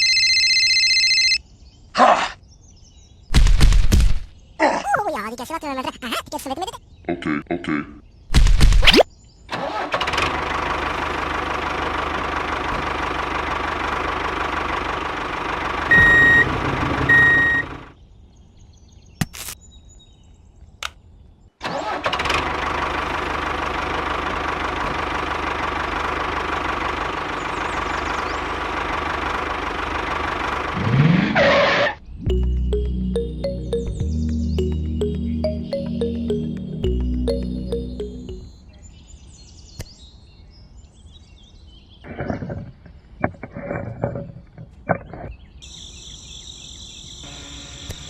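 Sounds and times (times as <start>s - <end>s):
miniature tractor engine drone: 9.6s - 17.9s, 21.7s - 30.9s.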